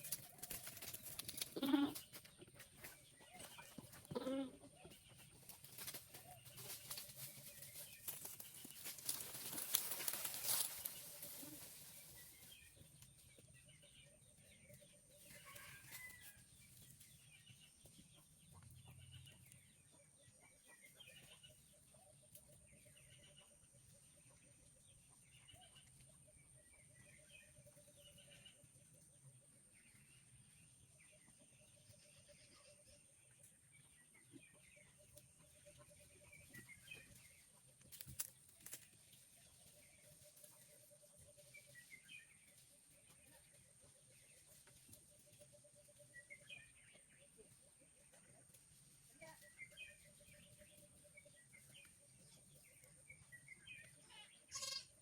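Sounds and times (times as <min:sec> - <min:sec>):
rustling and clattering movement: 0:00.0 - 0:04.2, 0:04.9 - 0:12.7
goats bleating: 0:54.5 - 0:54.9.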